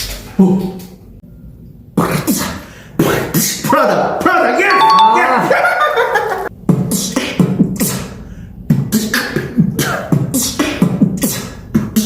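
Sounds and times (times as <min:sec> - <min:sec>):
vocal beatboxing: 0:08.7 - 0:12.0.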